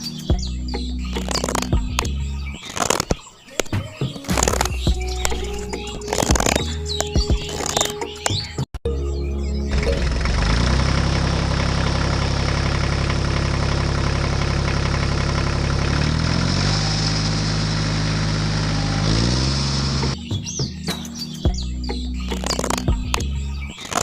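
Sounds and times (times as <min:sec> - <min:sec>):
engine running: 0:00.0 - 0:03.1, 0:09.2 - 0:20.2, 0:22.0 - 0:24.0.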